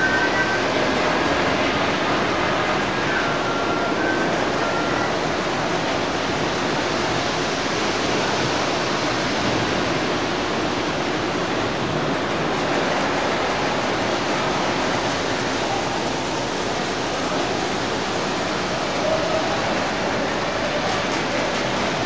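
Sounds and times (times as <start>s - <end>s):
whistle-like tone: 0.0s - 1.1s, 2.8s - 5.4s
model trains rumbling: 0.0s - 22.0s.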